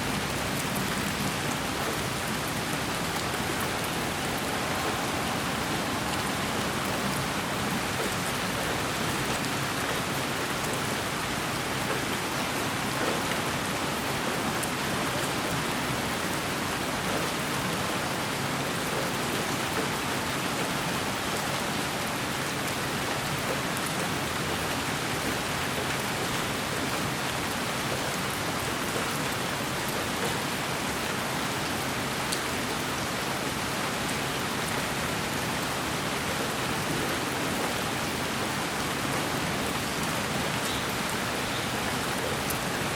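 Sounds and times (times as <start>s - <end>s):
white noise hiss: 2.1s - 9.1s.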